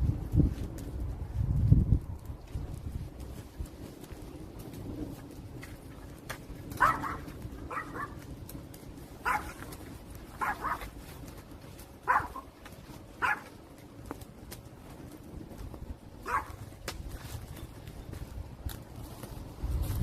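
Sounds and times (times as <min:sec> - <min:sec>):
wood fire crackling: 0:00.0 - 0:20.0
dog barking: 0:06.8 - 0:08.2, 0:09.2 - 0:09.7, 0:10.4 - 0:10.9, 0:12.0 - 0:12.5, 0:13.2 - 0:13.5, 0:16.2 - 0:16.6.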